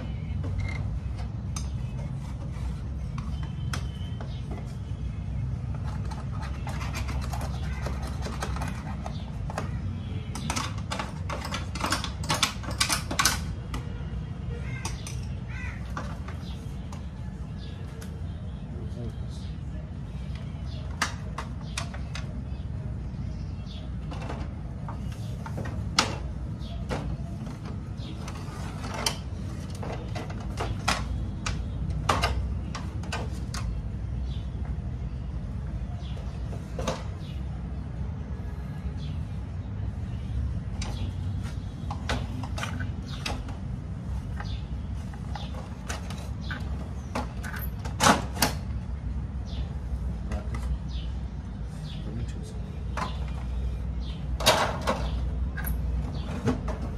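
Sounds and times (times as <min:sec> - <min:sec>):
plastic and metal parts clicking: 0:05.8 - 0:13.9.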